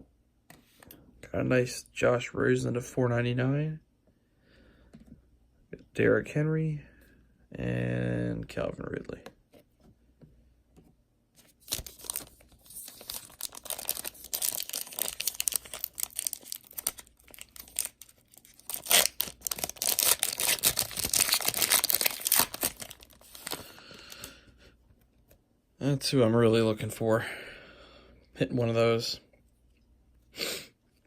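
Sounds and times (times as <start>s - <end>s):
foil wrapper crinkling: 11.4s - 24.2s.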